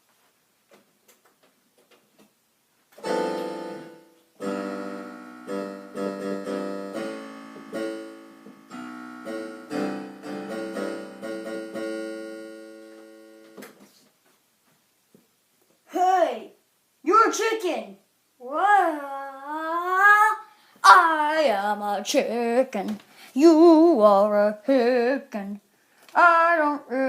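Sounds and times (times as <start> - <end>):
keyboard playing chords: 3.0 - 13.8.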